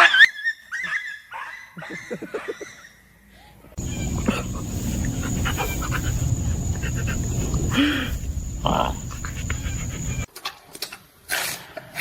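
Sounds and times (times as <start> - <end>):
dog whining and yipping: 3.8 - 10.3
steady noisy background: 3.8 - 10.3.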